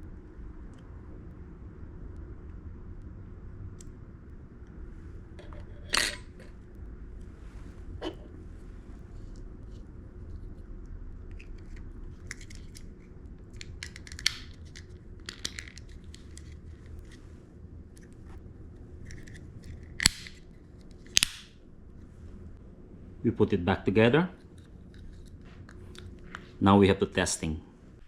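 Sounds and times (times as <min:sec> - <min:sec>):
loud sharp plastic snaps: 0:13.8 - 0:14.6, 0:20.0 - 0:20.4, 0:21.1 - 0:21.6.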